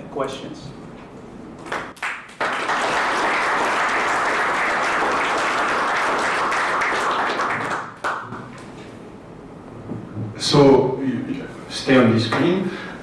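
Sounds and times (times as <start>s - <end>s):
audience applauding: 1.7s - 8.3s.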